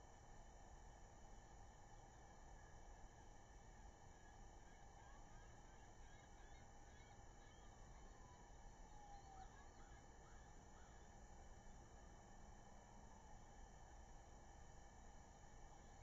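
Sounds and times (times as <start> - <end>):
low steady hiss: 0.0 - 16.0
faint bird calls: 4.6 - 11.4.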